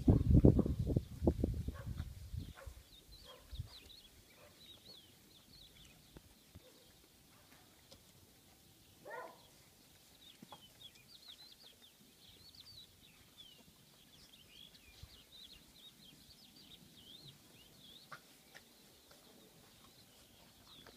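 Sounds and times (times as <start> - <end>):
small birds twittering: 0.6 - 20.9.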